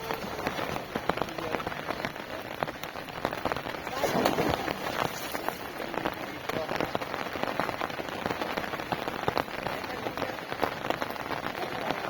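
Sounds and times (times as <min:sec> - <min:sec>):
heavy rain falling and splashing: 0:00.0 - 0:12.0.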